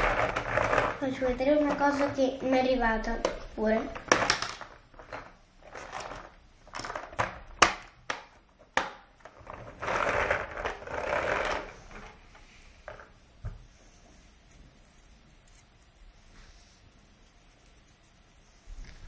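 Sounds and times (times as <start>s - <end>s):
plastic toys clicking and knocking: 0.0s - 13.6s
plastic toys rustling: 0.0s - 14.3s.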